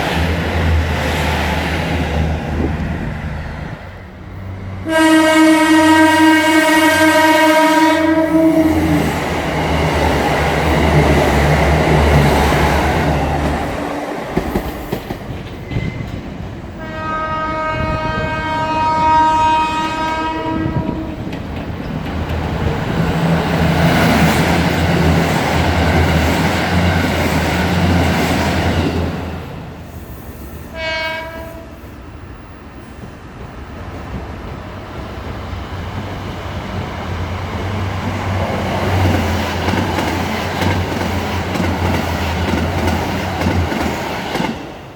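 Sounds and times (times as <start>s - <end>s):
train horn: 4.8s - 9.1s, 16.8s - 21.2s, 30.7s - 31.9s
train wheel clatter: 9.0s - 16.6s, 19.9s - 29.0s, 37.6s - 44.8s.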